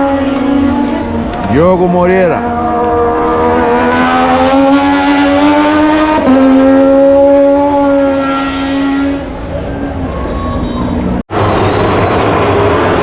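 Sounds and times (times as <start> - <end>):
racing motorcycle engine revving: 0.0 - 9.4.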